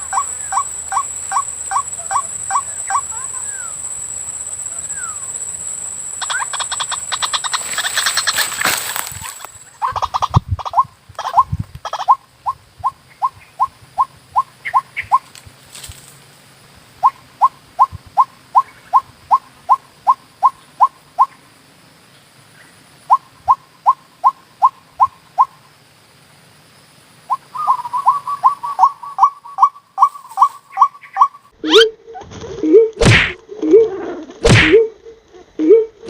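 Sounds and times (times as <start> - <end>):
waterhen calls: 0.0 - 3.8, 6.2 - 15.2.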